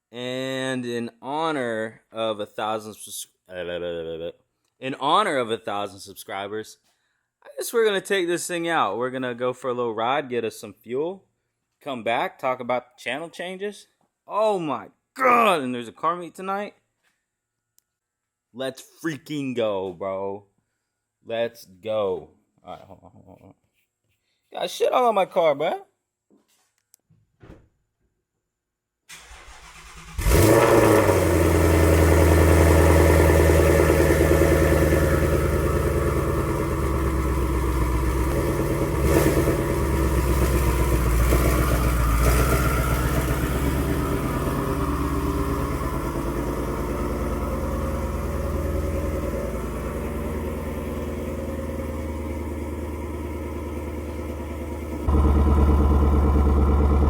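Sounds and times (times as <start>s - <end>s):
car engine starting and idling: 29.1s - 57.0s.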